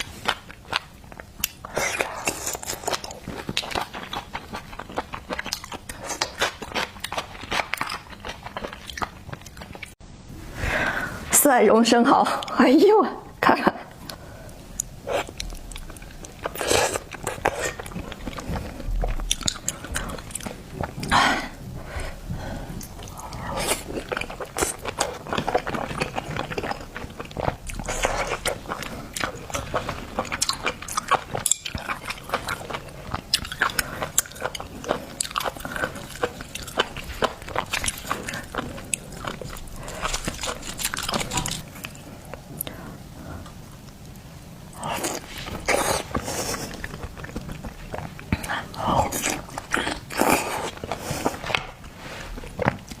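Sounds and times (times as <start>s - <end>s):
wet chewing and lip smacks: 22.8s - 42.8s.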